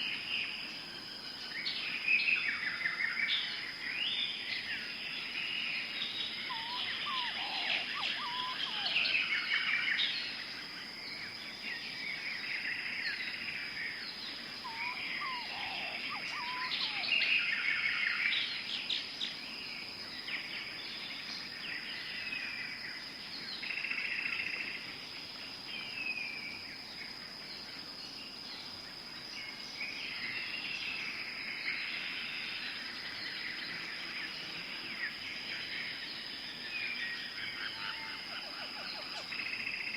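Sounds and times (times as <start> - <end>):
birds chirping and calling: 5.6 - 10.2, 14.2 - 19.4, 31.8 - 39.9
low-pitched bird call: 6.5 - 9.0, 14.6 - 17.3
high-pitched insect drone: 14.6 - 18.0.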